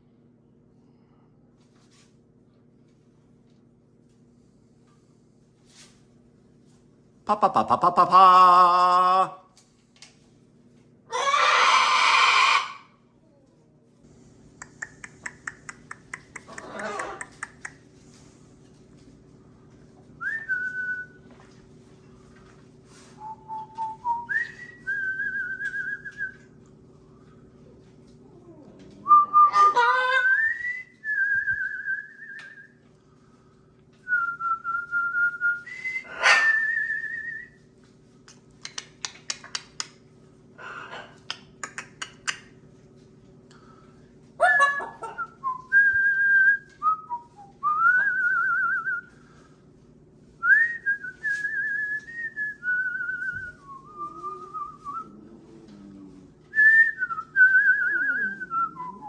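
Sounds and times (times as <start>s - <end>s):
steady low hum: 0.0s - 11.1s, 12.7s - 59.0s
parrot whistling: 35.8s - 36.8s.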